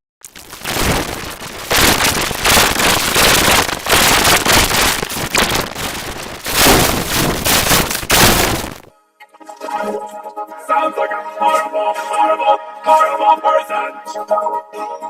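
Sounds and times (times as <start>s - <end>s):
harsh crackling distorted voice: 0.3s - 8.9s.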